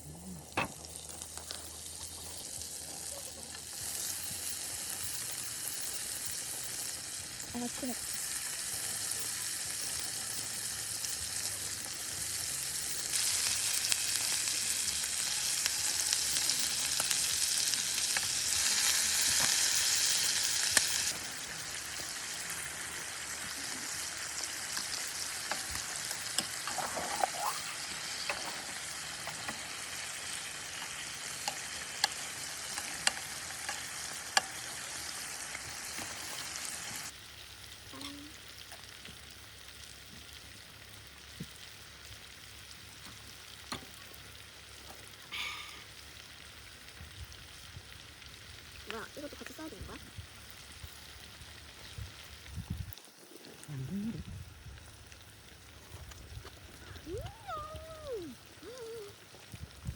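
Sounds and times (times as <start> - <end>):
food sizzling in hot pan: 0.0 - 59.9
oil pops and crackles: 18.0 - 21.3, 24.0 - 30.0, 37.1 - 53.8, 54.6 - 57.8.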